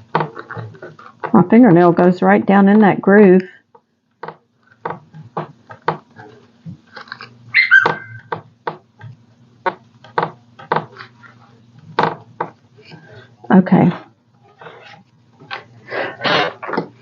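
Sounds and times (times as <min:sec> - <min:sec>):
faint steady hum: 0:00.0 - 0:17.0
dog whining yelp: 0:07.5 - 0:08.3
small dog yipping: 0:07.5 - 0:08.3.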